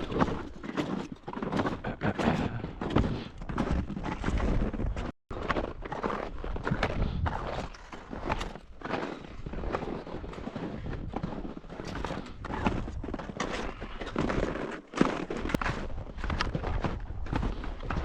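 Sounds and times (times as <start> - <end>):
footsteps crunching in snow: 0.0 - 18.0.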